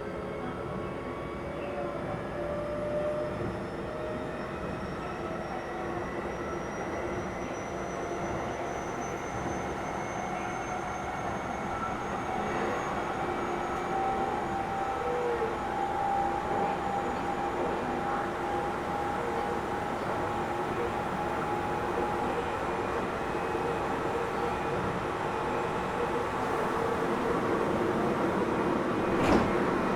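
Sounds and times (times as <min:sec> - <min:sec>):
train wheels rumbling on rails: 0:13.7 - 0:29.9.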